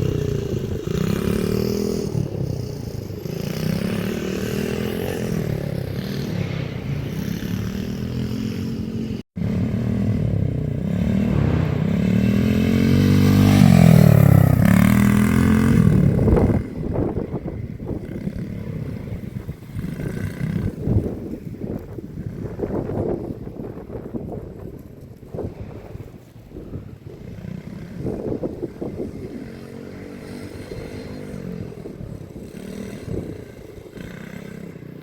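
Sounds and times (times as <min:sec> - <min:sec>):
dirt bike engine revving: 0:00.0 - 0:21.2.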